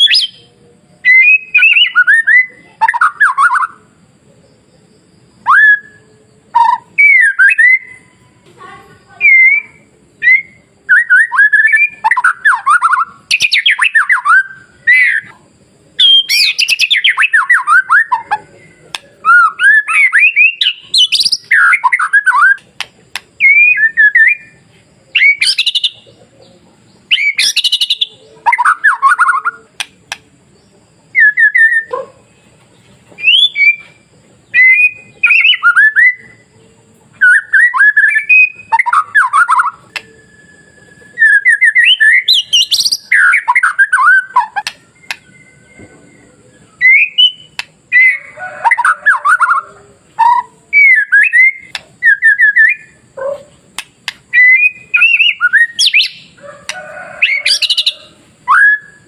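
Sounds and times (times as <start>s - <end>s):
bird singing varied phrases: 0.0s - 59.0s.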